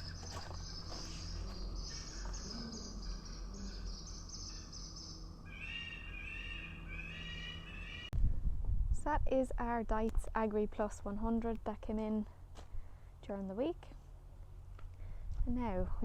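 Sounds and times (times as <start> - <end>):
faint low hum: 0.0 - 6.9
birds twittering and chirping: 0.0 - 8.1.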